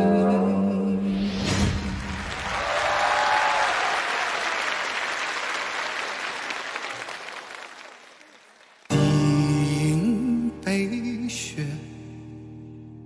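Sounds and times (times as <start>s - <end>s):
audience applauding: 1.9s - 9.4s.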